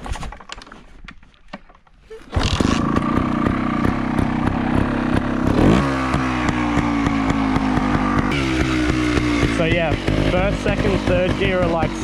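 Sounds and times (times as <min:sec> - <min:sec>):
dirt bike engine running: 0:02.4 - 0:12.0.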